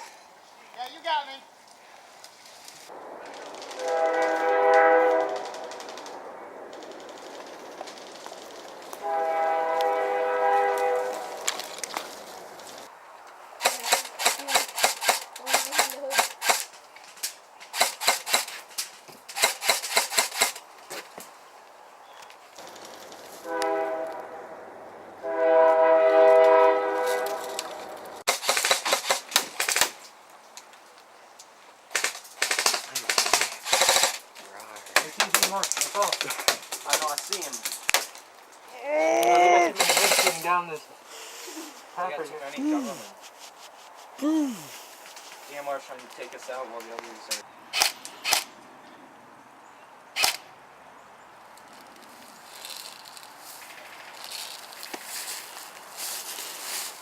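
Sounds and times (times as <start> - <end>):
chord-like horn: 3.8 - 5.5, 9.0 - 11.5, 23.4 - 28.0
airsoft guns firing: 13.6 - 16.7, 17.7 - 18.6, 19.3 - 20.6, 28.3 - 30.0, 31.9 - 34.2, 39.8 - 40.5.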